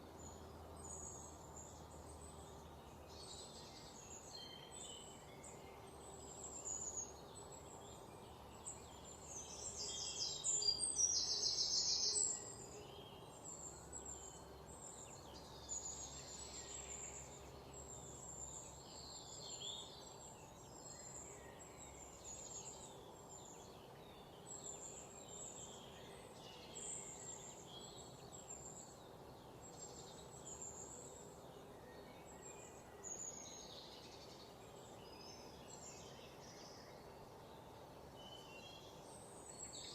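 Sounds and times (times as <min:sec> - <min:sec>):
low background noise: 0:00.0 - 0:39.9
small birds chirping: 0:00.0 - 0:39.9.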